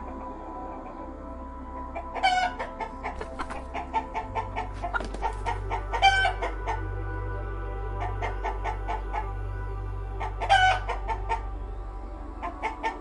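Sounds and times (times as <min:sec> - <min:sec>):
background music: 0:00.0 - 0:13.0
chicken calls: 0:02.2 - 0:06.4
chickens clucking: 0:02.3 - 0:06.4.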